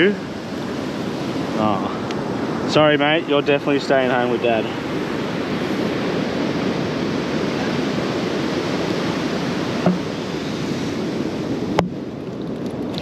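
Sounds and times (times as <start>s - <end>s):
ocean surf washing onto beach: 0.0s - 13.0s
short knock: 9.8s - 10.1s.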